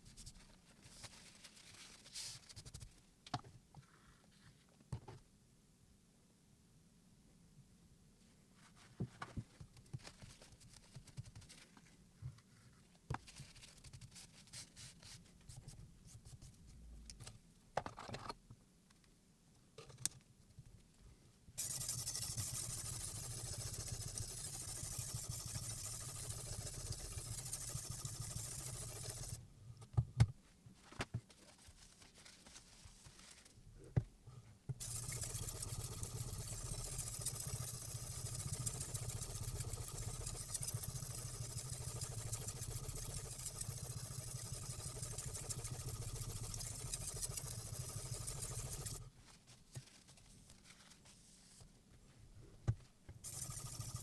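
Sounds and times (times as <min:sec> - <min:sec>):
machine humming and hissing: 0:34.8 - 0:49.0.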